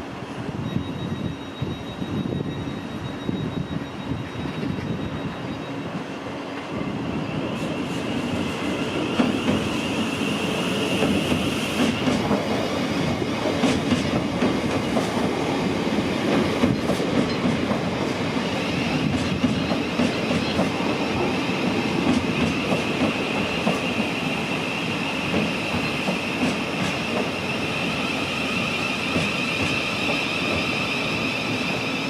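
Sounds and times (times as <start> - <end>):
train wheels clicking over rail joints: 10.9 - 15.6, 16.2 - 24.2, 25.2 - 27.5, 28.9 - 30.8.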